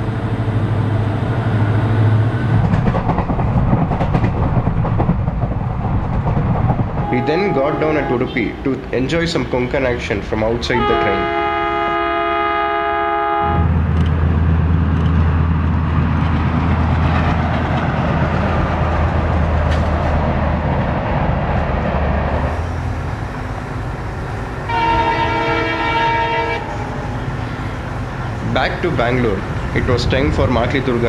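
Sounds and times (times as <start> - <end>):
locomotive engine drone: 0.0 - 31.0
passing train coaches rushing: 0.0 - 31.0
train wheel clicks: 2.6 - 7.1, 13.8 - 20.2
train horn: 7.0 - 8.4, 10.8 - 13.7, 24.6 - 27.1.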